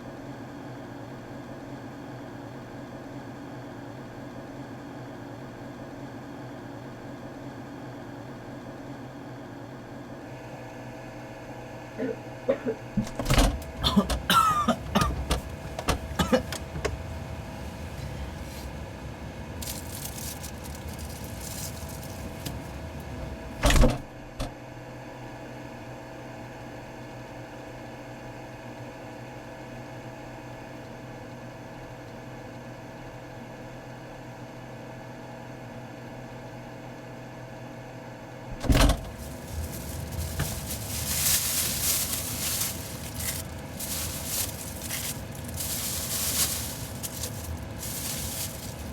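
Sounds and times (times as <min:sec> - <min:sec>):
refrigerator humming: 0:07.2 - 0:26.0, 0:38.2 - 0:48.9
rustling: 0:13.0 - 0:23.6, 0:38.5 - 0:48.9.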